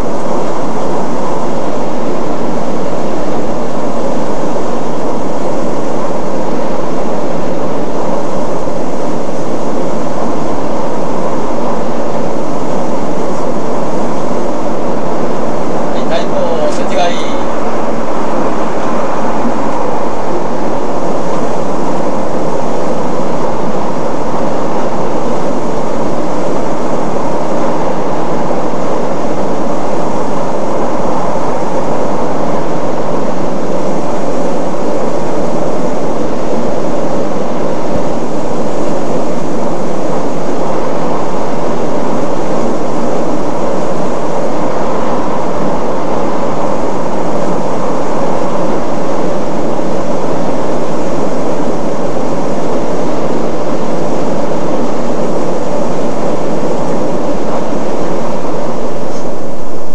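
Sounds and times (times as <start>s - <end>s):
train rumble and air rush: 5.4s - 52.7s.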